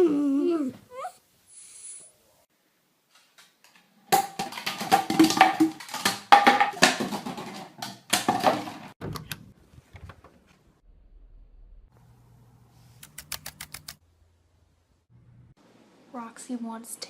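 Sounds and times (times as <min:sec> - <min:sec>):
knocks and clatters: 0:03.2 - 0:10.5.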